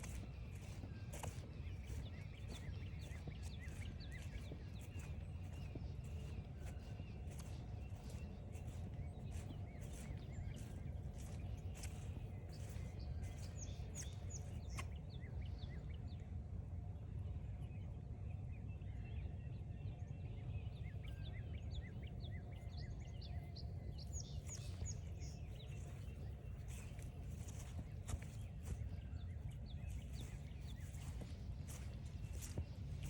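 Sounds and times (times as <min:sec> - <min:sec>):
footsteps on trail: 0:00.0 - 0:15.6, 0:23.6 - 0:33.0
birds chirping: 0:00.0 - 0:16.3, 0:20.6 - 0:33.0
low background rumble: 0:00.0 - 0:33.0.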